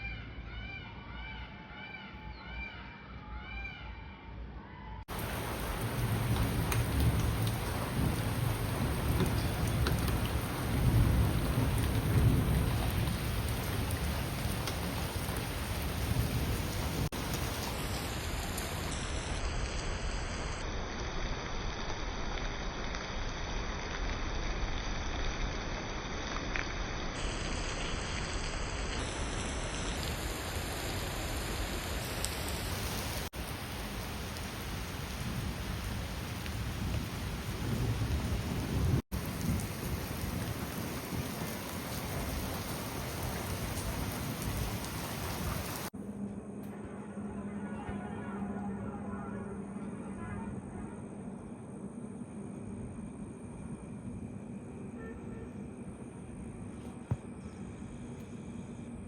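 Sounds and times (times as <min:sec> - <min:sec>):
rolls of thunder: 0:05.1 - 0:17.7
heavy rain: 0:05.1 - 0:46.0.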